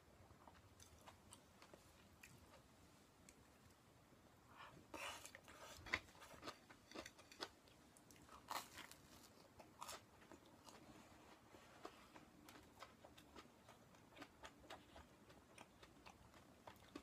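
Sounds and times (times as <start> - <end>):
person chewing: 4.9 - 17.0
toast crunching: 5.0 - 10.9.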